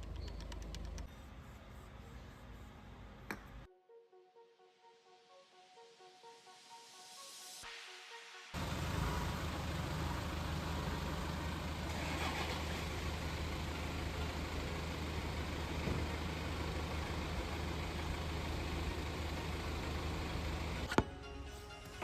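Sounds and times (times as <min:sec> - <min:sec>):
diesel engine running: 0:00.0 - 0:01.1, 0:08.6 - 0:20.9.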